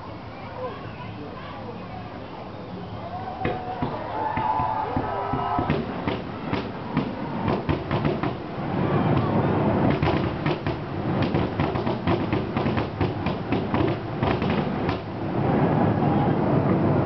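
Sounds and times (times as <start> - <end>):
fireworks bangs and crackles: 3.5 - 17.0.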